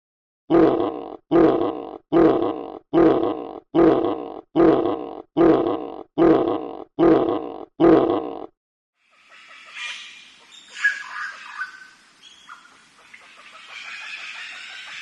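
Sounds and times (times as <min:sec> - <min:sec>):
animal grunting call: 0:00.5 - 0:08.5.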